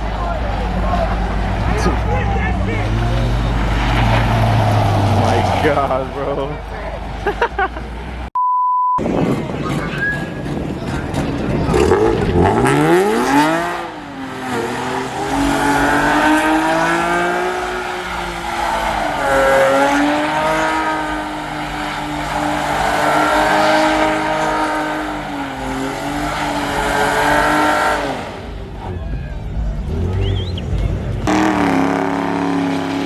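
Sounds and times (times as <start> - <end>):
car engine revving: 0.0 - 8.3, 9.1 - 33.0
tyre squeal: 9.6 - 10.5.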